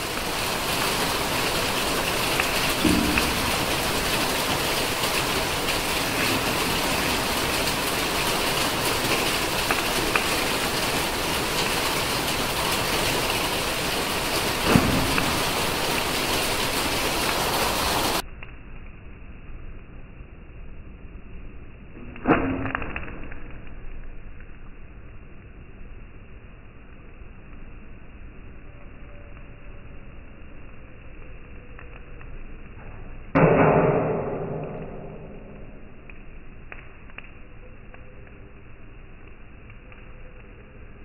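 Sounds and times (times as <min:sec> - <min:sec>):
heavy rain: 0:00.0 - 0:18.2, 0:33.4 - 0:36.1.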